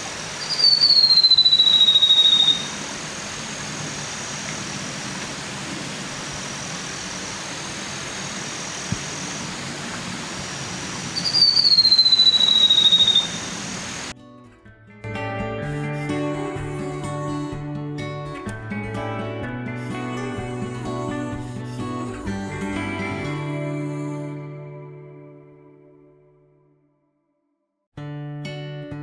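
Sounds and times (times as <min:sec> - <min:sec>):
forest ambience hiss: 0:00.0 - 0:14.1
bird high descending whistle: 0:00.3 - 0:02.9, 0:11.1 - 0:14.1.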